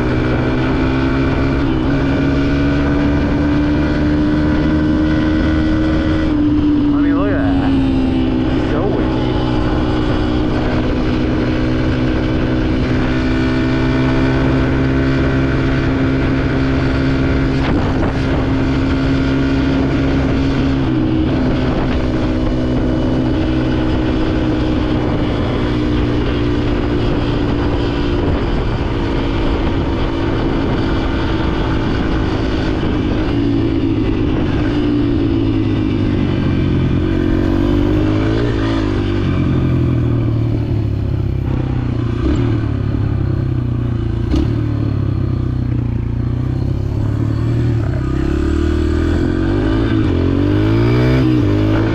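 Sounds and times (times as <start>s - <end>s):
dirt bike engine running: 0.0s - 51.9s.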